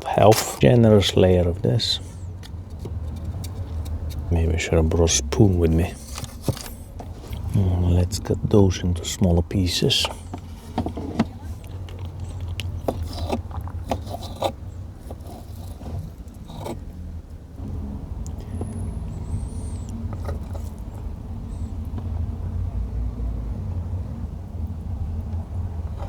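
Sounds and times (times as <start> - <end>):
car engine running: 0.0 - 26.0
knife cutting food on a board: 10.0 - 16.8.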